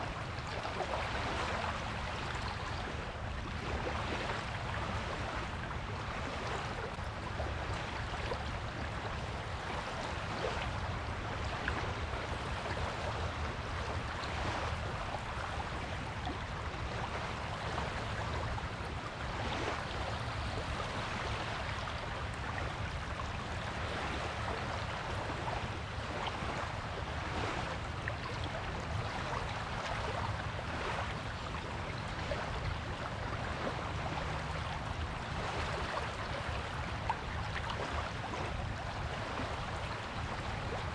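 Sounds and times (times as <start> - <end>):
waves washing onto beach: 0.0 - 40.9.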